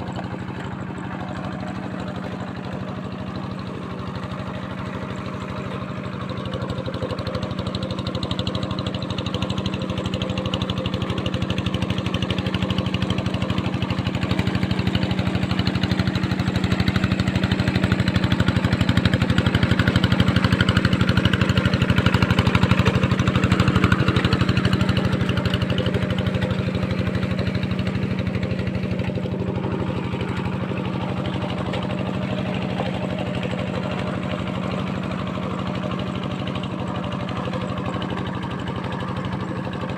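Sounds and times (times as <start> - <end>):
diesel tractor engine running: 0.0 - 39.9.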